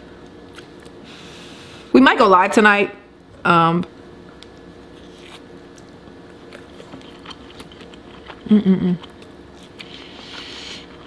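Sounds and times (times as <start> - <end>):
person chewing food: 4.4 - 11.0
person humming mm: 8.5 - 9.1.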